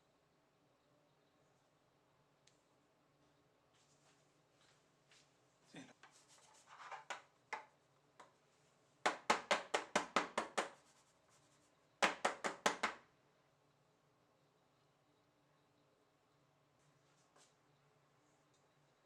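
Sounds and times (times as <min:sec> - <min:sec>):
soft rustling: 0:03.7 - 0:07.1, 0:10.8 - 0:11.9, 0:16.8 - 0:18.5
sharp evenly spaced knocks: 0:09.0 - 0:10.8, 0:12.0 - 0:13.0.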